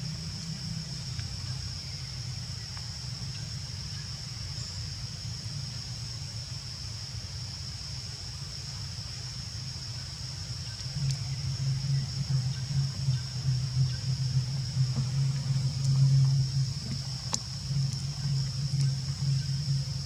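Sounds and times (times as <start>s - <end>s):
low rumble: 10.8s - 20.0s
high-pitched drone: 10.9s - 20.0s.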